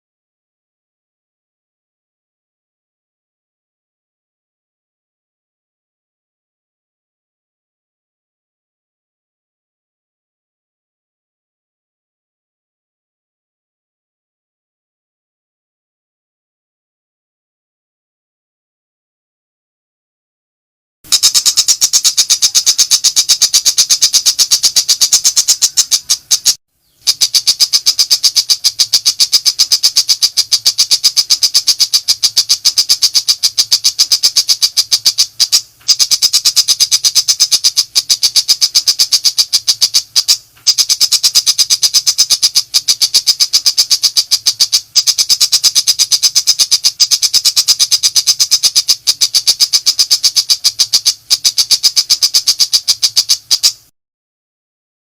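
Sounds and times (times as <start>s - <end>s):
bird singing rapid high notes: 21.1s - 53.9s.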